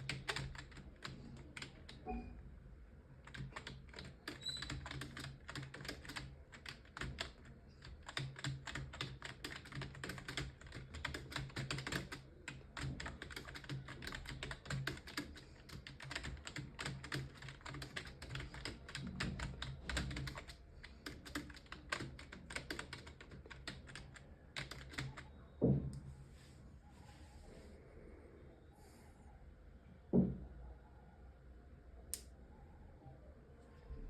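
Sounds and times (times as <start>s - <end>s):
fast keyboard typing: 0.0s - 2.3s, 3.2s - 25.3s.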